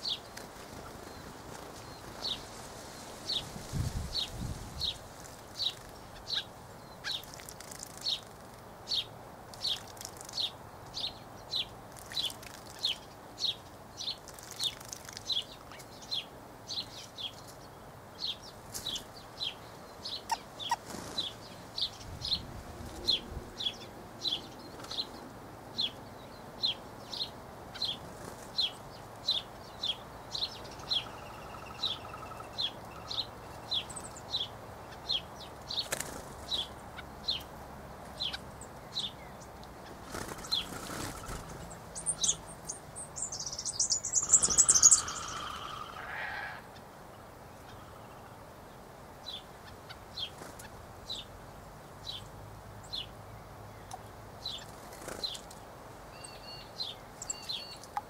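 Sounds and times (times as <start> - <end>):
bird chirping: 8.9 - 37.5, 38.1 - 46.8, 52.0 - 58.0.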